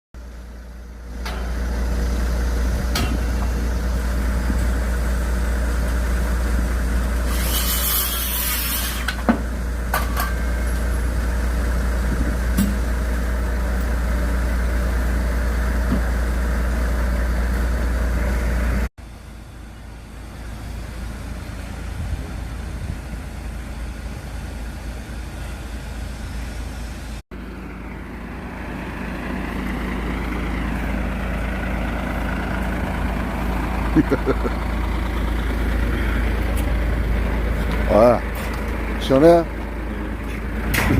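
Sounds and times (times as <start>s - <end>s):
heavy engine droning: 0.2s - 40.9s.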